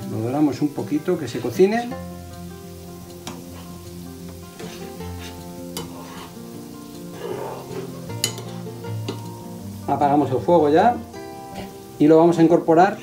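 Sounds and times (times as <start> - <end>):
food sizzling in a frying pan: 0.0 - 13.0
quiet background music: 0.0 - 13.0
spoon clicking against pan: 8.2 - 9.3.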